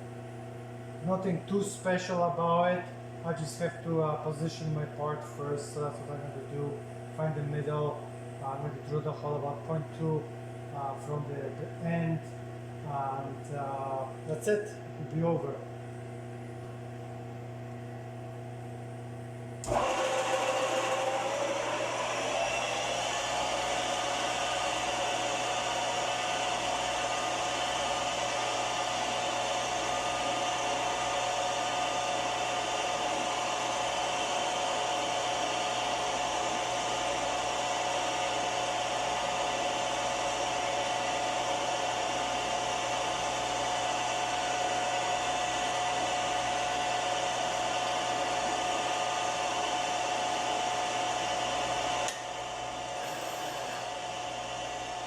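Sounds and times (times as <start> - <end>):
milling machine spindle whine: 19.6 - 55.0.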